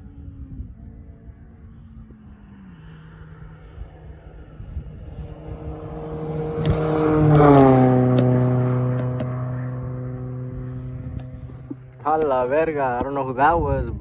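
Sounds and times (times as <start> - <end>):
vehicle driving past: 1.3 - 12.0.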